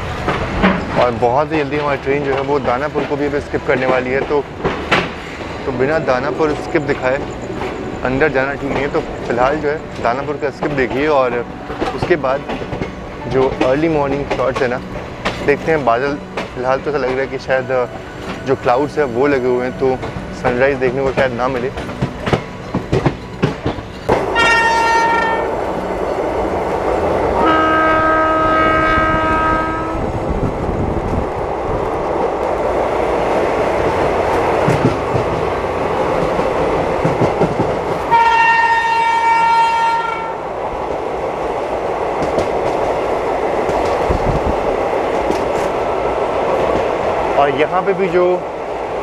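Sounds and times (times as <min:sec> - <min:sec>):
train wheel and rail noise: 0:00.0 - 0:49.0
train horn blasts: 0:24.2 - 0:25.6, 0:27.3 - 0:30.2, 0:38.1 - 0:40.4.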